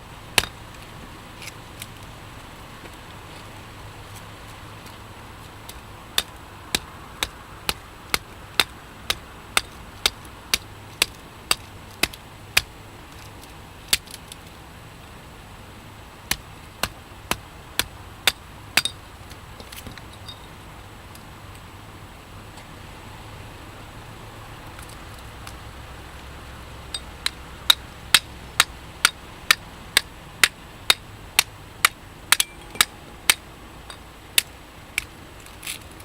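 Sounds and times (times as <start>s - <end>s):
hatchet striking metal: 0.4s - 0.6s, 17.8s - 19.0s, 26.9s - 29.6s, 30.9s - 34.5s.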